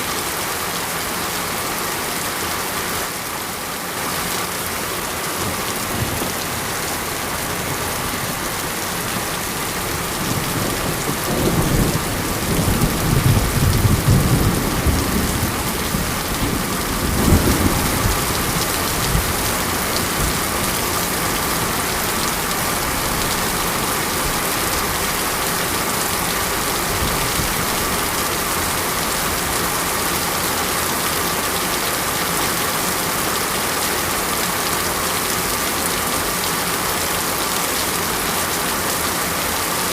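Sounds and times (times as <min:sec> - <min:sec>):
steady rain: 0:00.0 - 0:39.9
thunder rumbling: 0:05.4 - 0:23.5.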